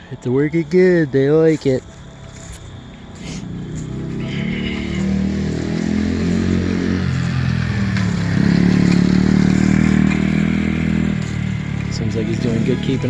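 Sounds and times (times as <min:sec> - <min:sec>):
small motorbike engine revving: 0:03.2 - 0:13.0.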